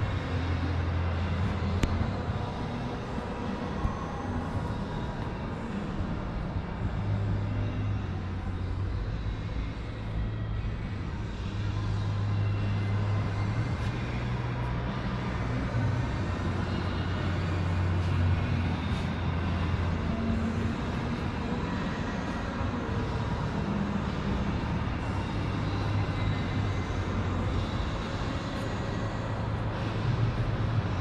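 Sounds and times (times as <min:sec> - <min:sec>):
vehicle engine humming: 0:00.0 - 0:31.0.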